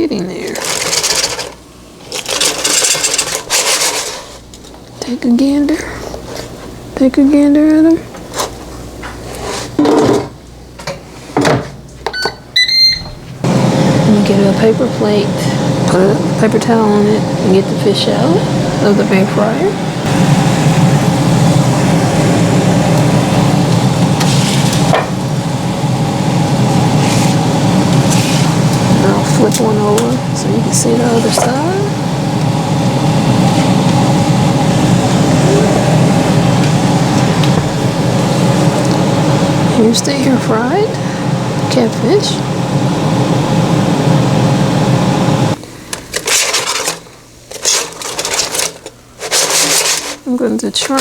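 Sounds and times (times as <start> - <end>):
air fryer fan humming: 0.0 - 51.0
rustling and scraping: 0.5 - 4.8, 46.1 - 50.3.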